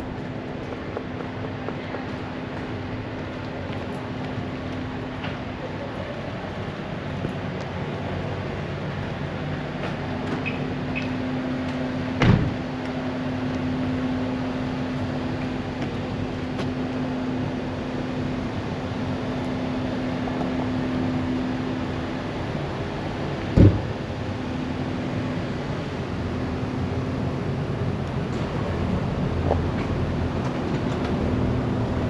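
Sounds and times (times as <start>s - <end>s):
steady mechanical hum: 0.0s - 32.0s
loud thump: 12.2s - 12.6s, 23.6s - 24.0s.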